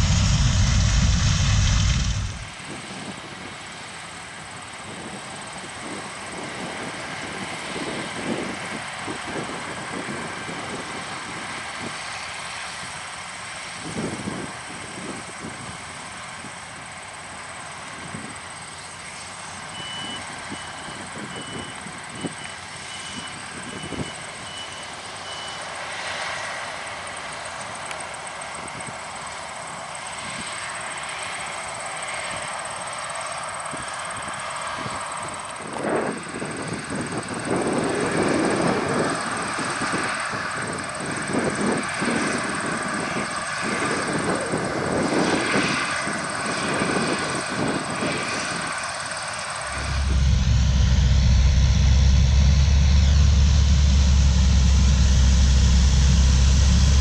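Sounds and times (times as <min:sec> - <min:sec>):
combine harvester running: 0:00.0 - 0:03.0, 0:49.0 - 0:57.0.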